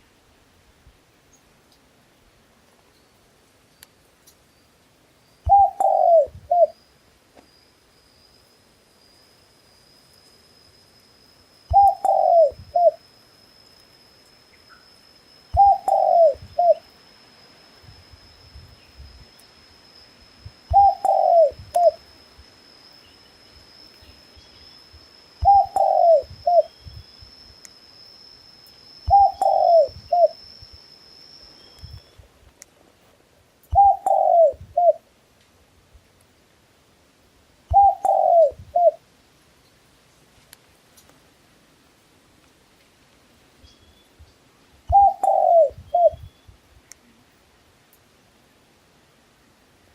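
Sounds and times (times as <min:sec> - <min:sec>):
dove cooing: 0:05.5 - 0:06.8, 0:11.7 - 0:13.0, 0:15.6 - 0:16.8, 0:20.7 - 0:22.0, 0:25.4 - 0:26.7, 0:29.1 - 0:30.4, 0:33.7 - 0:35.0, 0:37.7 - 0:39.0, 0:44.9 - 0:46.2.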